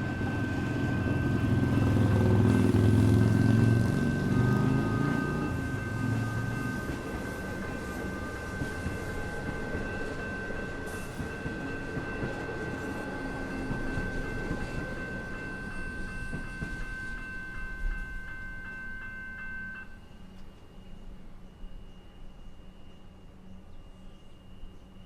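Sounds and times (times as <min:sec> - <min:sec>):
steady high tone: 0:00.0 - 0:20.2
train wheels rumbling on track: 0:00.0 - 0:21.0.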